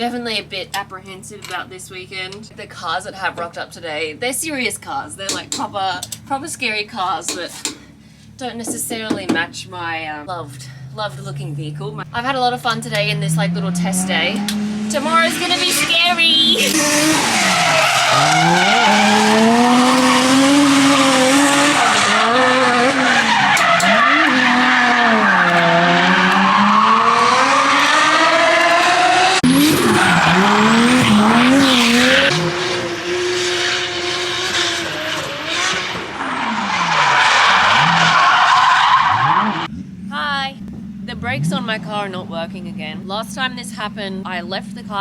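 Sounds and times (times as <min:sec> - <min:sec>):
car engine revving: 0:09.1 - 0:45.0
tyre squeal and skidding: 0:15.4 - 0:32.7, 0:33.4 - 0:39.7.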